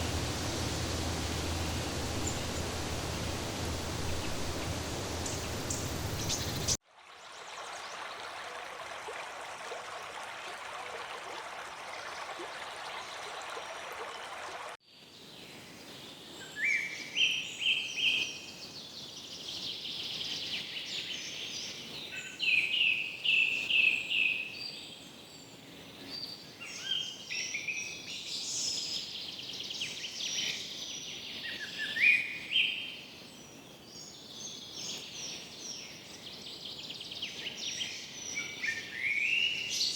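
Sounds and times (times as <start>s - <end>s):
faint background hiss: 0.0s - 6.8s
steady water noise: 0.0s - 14.8s.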